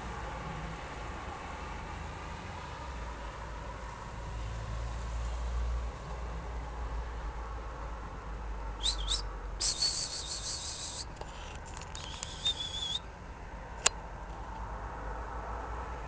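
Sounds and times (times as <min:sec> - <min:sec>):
songbird singing: 0:08.8 - 0:13.1
sharp click: 0:11.1 - 0:12.6.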